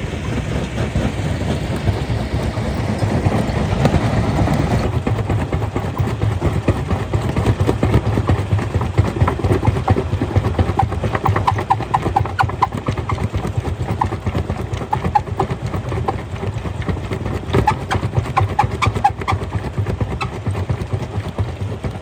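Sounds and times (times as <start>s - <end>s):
low machine rumble: 0.0s - 5.9s.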